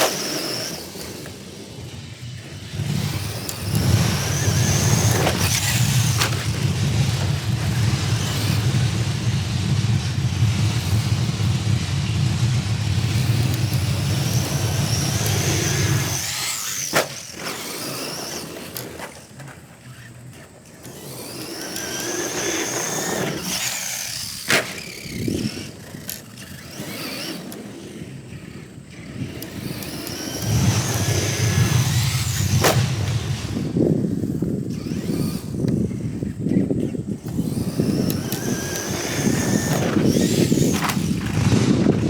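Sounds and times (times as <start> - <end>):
sharp clicks: 37.2 - 42.0.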